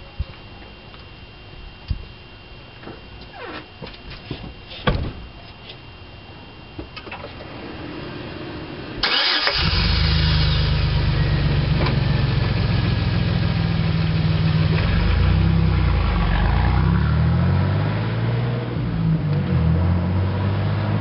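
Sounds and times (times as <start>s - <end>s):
truck engine cranking: 9.0s - 10.8s.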